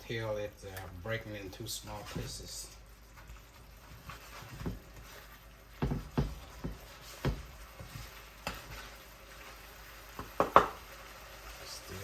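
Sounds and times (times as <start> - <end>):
faint frying sizzle: 0.0 - 12.0
utensil knocking and scraping pan: 4.0 - 9.0, 10.2 - 10.8.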